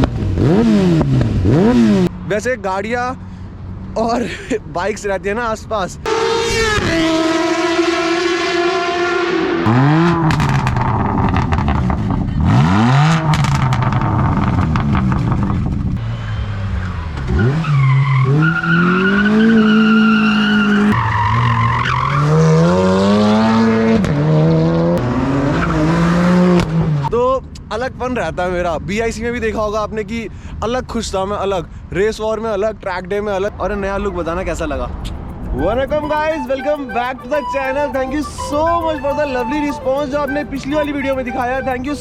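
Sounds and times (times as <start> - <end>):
motorcycle engine revving: 0.0 - 2.1
exhaust crackles and pops: 9.7 - 16.0.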